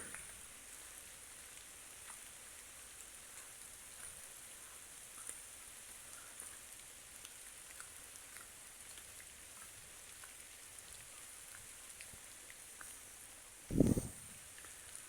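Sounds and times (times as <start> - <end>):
light rain hiss: 0.0 - 15.0
soft drips: 0.0 - 15.0.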